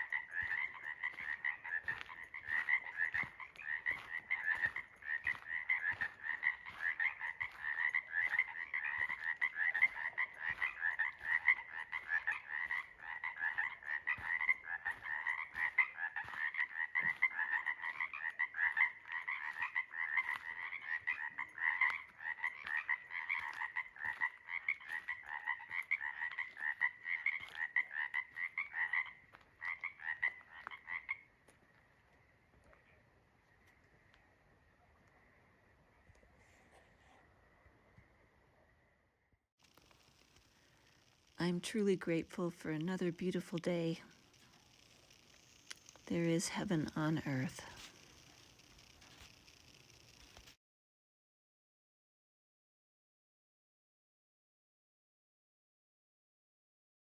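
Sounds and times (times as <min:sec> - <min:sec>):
frogs trilling in chorus: 0:00.0 - 0:34.3, 0:39.6 - 0:50.5.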